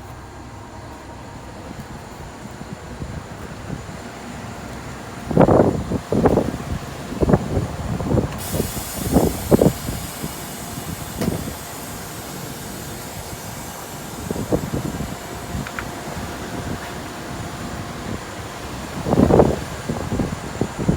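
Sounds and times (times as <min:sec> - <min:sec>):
steady rushing hiss: 0:00.0 - 0:20.9
wind buffeting microphone: 0:01.2 - 0:20.9.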